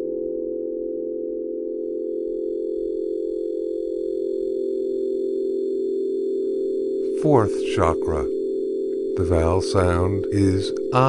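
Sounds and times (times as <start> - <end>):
meditation drone of held tones: 0.0 - 11.0
faint high tones: 6.4 - 8.4, 9.0 - 11.0.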